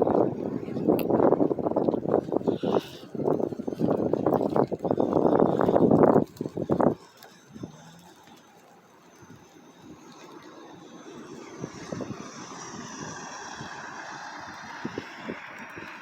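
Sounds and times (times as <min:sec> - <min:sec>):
vehicle or aircraft engine passing: 0:09.6 - 0:16.0.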